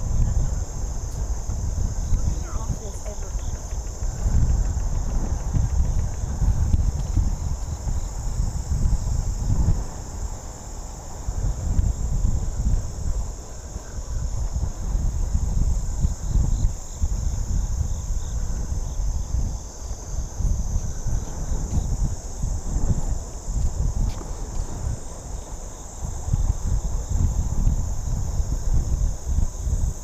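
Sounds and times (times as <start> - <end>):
gusty wind rumble: 0.0 - 30.0
insects chorus: 0.0 - 30.0.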